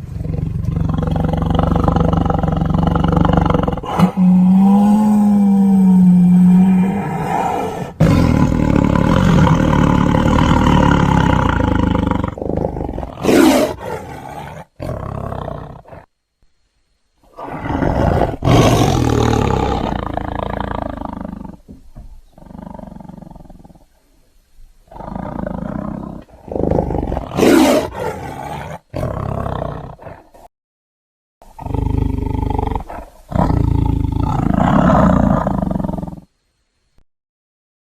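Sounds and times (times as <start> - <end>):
low growls: 0.0 - 16.1, 17.3 - 24.0, 24.9 - 30.5
creature roars: 0.8 - 16.0.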